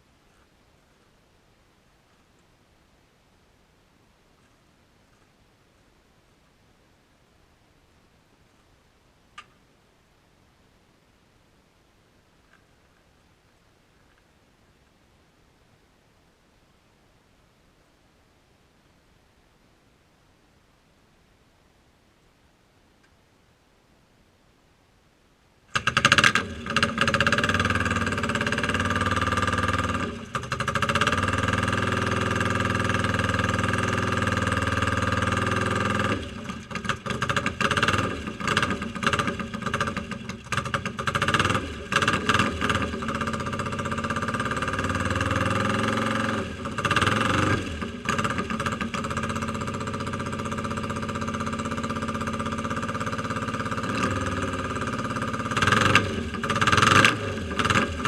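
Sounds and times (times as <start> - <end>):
motorcycle engine starting and idling: 25.7 - 58.0.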